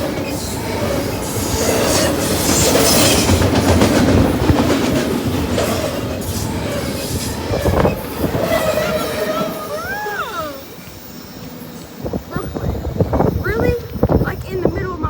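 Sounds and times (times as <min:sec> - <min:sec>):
freight train wheels clattering: 0:00.0 - 0:10.0.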